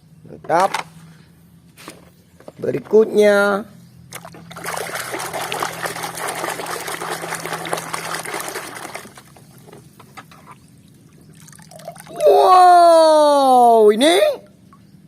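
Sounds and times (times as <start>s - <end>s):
water splashing over plastic toy: 4.1s - 9.6s
water trickling: 4.1s - 12.4s
person exclaiming: 12.1s - 14.5s.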